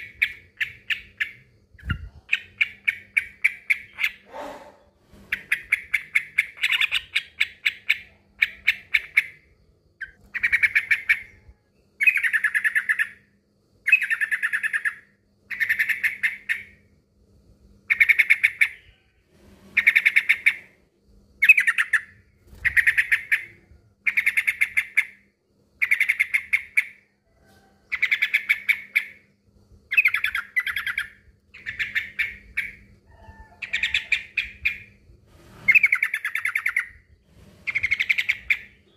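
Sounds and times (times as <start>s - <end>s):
bulbul singing: 29.9s - 32.9s.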